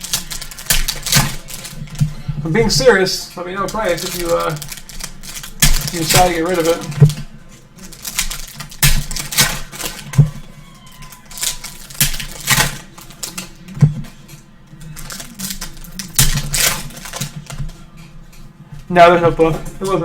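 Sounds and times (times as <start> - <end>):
foil wrappers crinkling: 0.0 - 20.0
cards rustling and sliding: 3.6 - 10.4.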